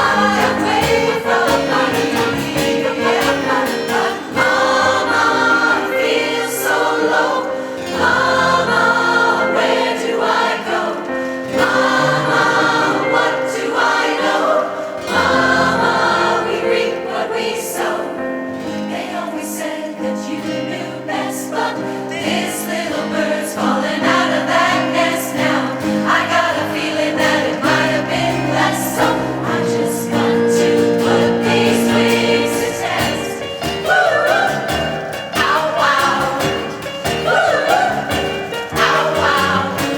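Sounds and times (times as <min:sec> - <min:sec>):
choir singing sustained chords: 0:00.0 - 0:39.9.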